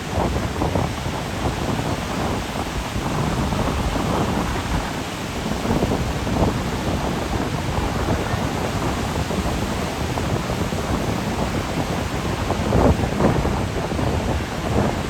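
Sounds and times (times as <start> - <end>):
ocean surf breaking: 0.0 - 15.0
wind on microphone: 0.0 - 15.0.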